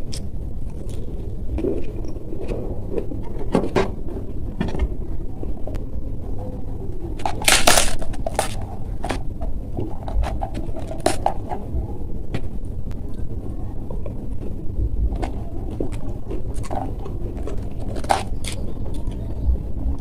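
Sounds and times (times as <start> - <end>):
crunching and chewing food: 0.0 - 4.5, 7.1 - 11.7, 14.0 - 20.0
low rumble: 0.0 - 20.0.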